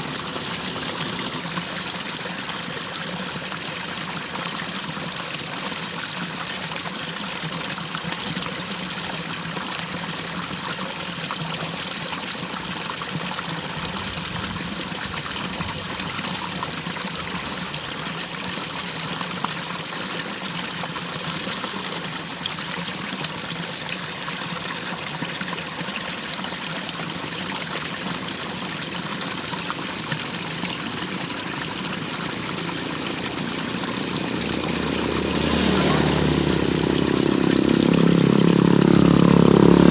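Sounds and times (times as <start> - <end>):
water rushing in ditch: 0.0 - 39.9.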